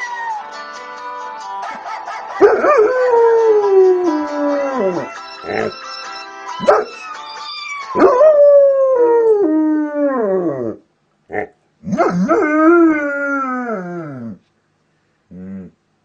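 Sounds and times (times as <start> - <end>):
dog howling: 2.5 - 5.7
dog yip: 6.6 - 7.0.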